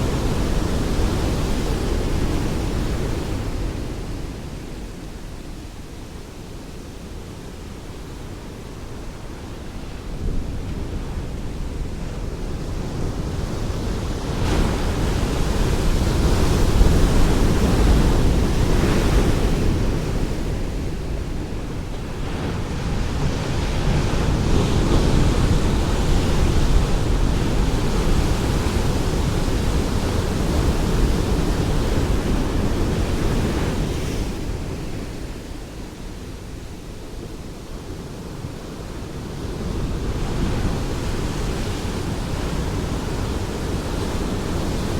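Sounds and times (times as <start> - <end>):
ocean waves breaking: 8.9 - 37.3.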